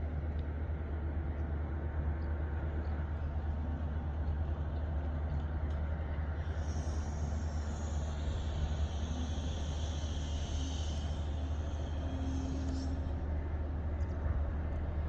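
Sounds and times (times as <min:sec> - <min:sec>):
low rumble of harbour machinery: 0:00.0 - 0:15.0
high hiss: 0:06.4 - 0:13.2.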